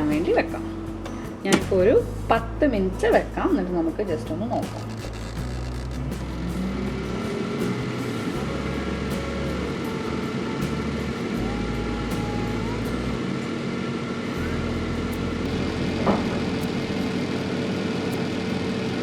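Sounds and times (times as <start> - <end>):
air fryer fan whirring: 4.6 - 19.0.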